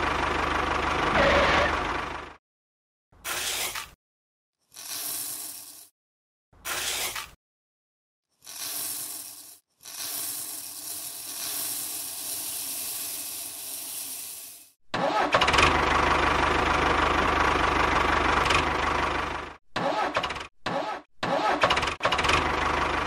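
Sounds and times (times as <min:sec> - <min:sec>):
tractor engine rumbling: 0:00.0 - 0:02.4, 0:15.1 - 0:20.4, 0:21.4 - 0:23.0
soybeans pouring into trolley: 0:04.7 - 0:05.9, 0:08.4 - 0:14.7.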